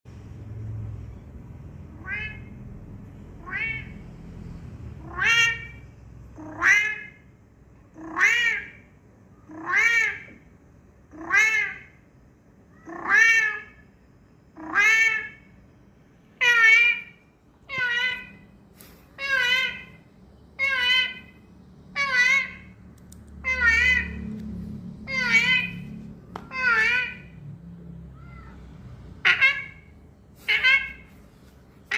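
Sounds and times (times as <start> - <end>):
cat meowing: 2.0 - 2.6, 3.4 - 4.0, 28.1 - 29.7.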